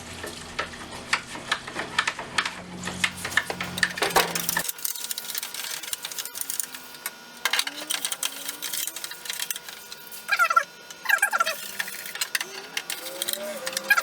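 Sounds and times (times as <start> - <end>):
steady hum: 2.6 - 14.0
metal parts being scrubbed and scraped: 2.8 - 14.0.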